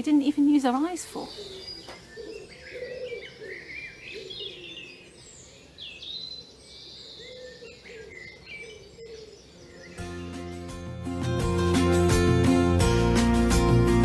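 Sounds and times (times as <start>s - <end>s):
small birds chirping and trilling: 0.0s - 10.9s
pigeon cooing: 1.2s - 5.1s, 6.4s - 9.9s.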